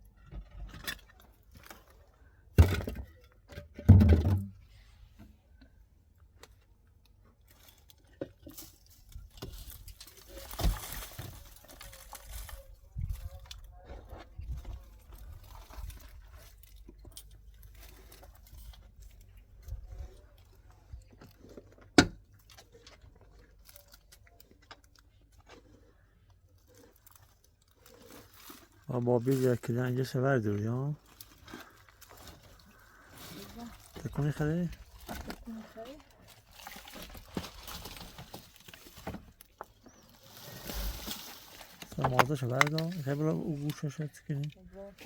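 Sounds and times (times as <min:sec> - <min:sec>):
objects being handled: 0:00.1 - 0:45.0
rustling: 0:06.4 - 0:21.7, 0:24.8 - 0:45.0.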